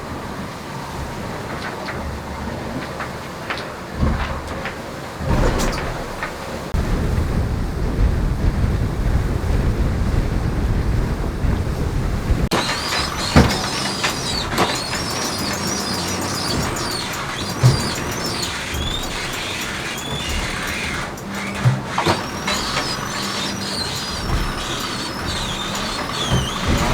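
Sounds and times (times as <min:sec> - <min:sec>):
wind and water rumble: 0:00.0 - 0:26.9
boat gear squeaking and creaking: 0:01.5 - 0:06.8, 0:12.3 - 0:26.9
sharp knocks: 0:12.5 - 0:26.9.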